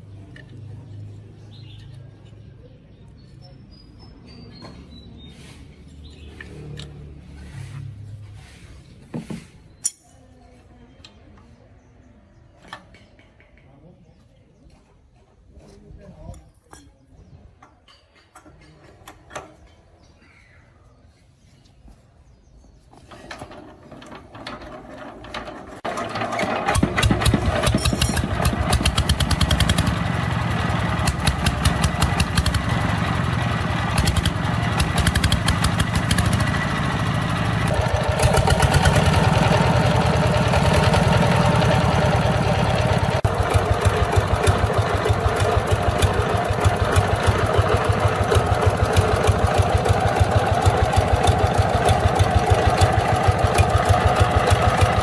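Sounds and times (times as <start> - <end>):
single-cylinder diesel engine running: 23.4 - 55.0.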